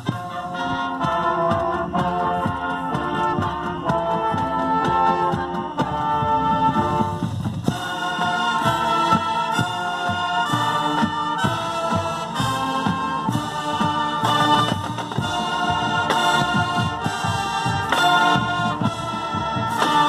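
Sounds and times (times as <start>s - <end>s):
regular drum beat: 0.0s - 20.0s
wind instrument chords: 0.0s - 20.0s.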